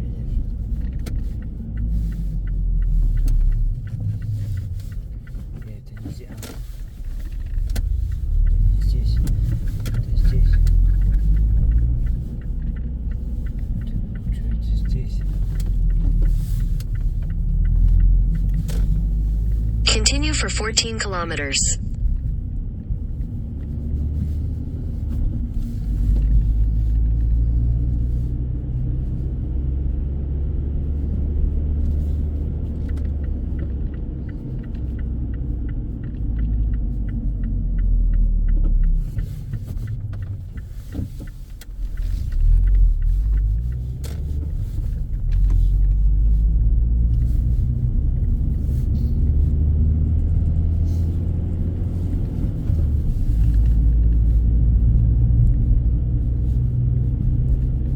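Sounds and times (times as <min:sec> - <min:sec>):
car cabin road rumble: 0:00.0 - 0:20.4, 0:22.4 - 0:57.9
faint rapid ticks: 0:00.4 - 0:19.7, 0:32.8 - 0:49.5.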